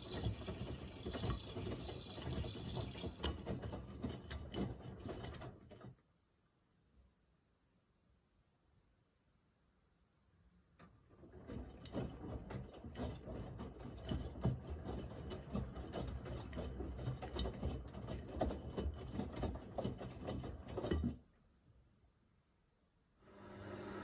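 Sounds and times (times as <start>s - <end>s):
washing machine drum tumbling laundry: 0.0s - 5.9s, 11.2s - 21.2s.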